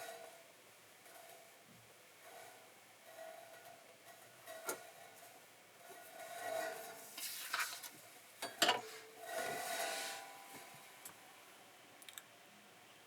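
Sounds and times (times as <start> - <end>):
scraping or rustling: 2.2 - 10.8.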